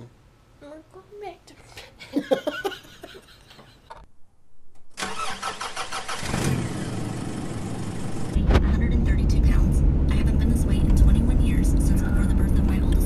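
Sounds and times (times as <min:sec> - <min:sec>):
car starter cranking: 0:05.0 - 0:06.7
car engine running: 0:06.2 - 0:13.0.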